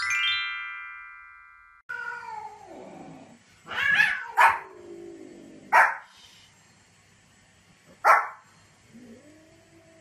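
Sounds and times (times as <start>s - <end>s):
chime ringing: 0.0s - 1.8s
cat yowling: 3.7s - 4.8s.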